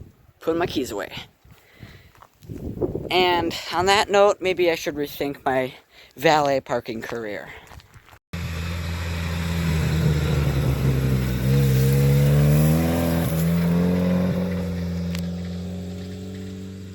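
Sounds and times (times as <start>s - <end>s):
car engine revving: 8.4s - 16.9s.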